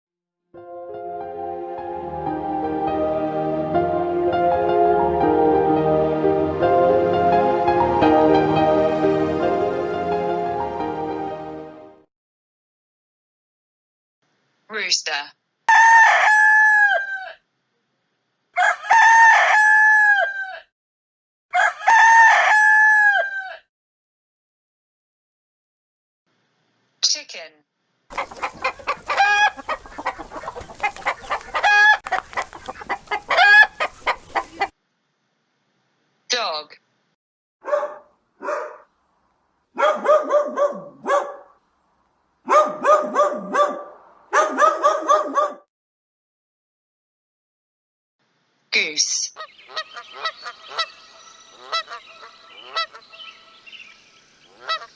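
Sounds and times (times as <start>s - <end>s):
rooster crowing: 15.7s - 17.4s, 18.6s - 20.7s, 21.5s - 23.7s, 28.9s - 29.6s, 31.6s - 32.0s, 33.3s - 33.9s, 39.8s - 41.4s, 42.5s - 45.5s
dog barking: 37.6s - 38.9s, 39.8s - 41.6s, 42.4s - 45.7s.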